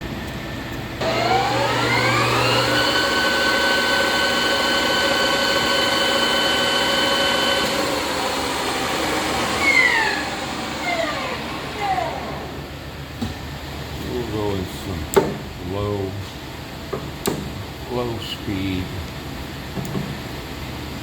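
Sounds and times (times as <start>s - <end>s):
lathe gear whine: 1.0s - 12.9s.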